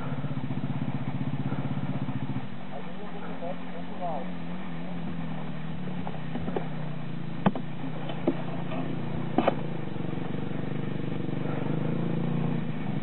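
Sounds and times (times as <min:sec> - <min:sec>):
motorcycle engine running: 0:00.0 - 0:13.0
sharp knocks: 0:07.4 - 0:08.5.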